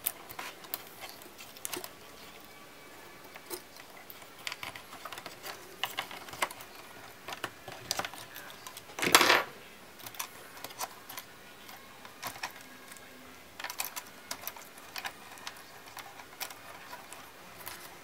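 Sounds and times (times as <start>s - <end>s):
small plastic and metal clicks: 13.6s - 17.9s.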